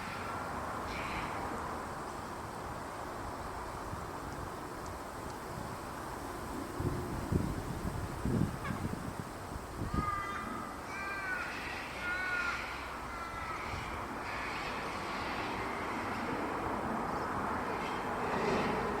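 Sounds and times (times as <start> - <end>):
cockatoos screeching: 10.0 - 16.4.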